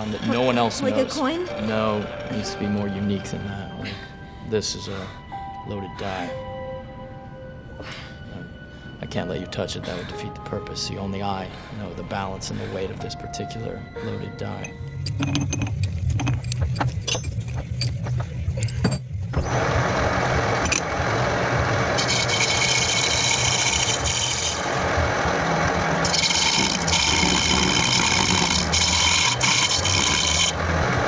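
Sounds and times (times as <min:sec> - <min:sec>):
lathe humming: 0:19.4 - 0:31.0
tool scraping spinning metal: 0:21.9 - 0:24.8, 0:26.0 - 0:30.6.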